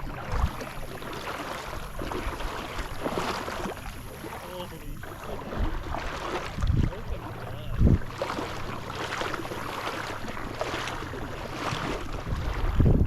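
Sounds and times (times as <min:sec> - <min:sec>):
water sloshing in a marsh: 0:00.0 - 0:13.0
wind rumbling on microphone: 0:00.0 - 0:13.0
heavy low thumps: 0:04.8 - 0:08.9.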